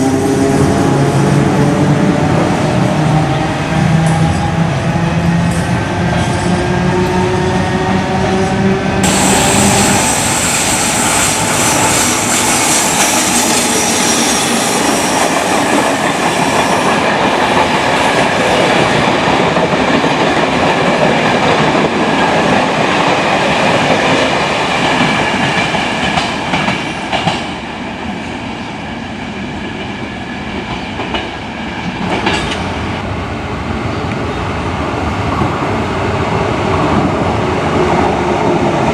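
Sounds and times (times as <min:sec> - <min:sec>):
high hissing wheel noise: 0:09.0 - 0:17.1
train wheels clickety-clack: 0:09.0 - 0:27.6, 0:30.5 - 0:32.8.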